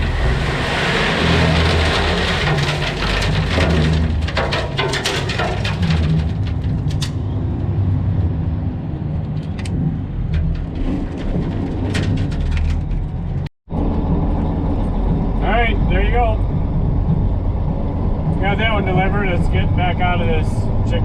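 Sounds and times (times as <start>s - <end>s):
gravel pouring out: 0.0s - 6.9s.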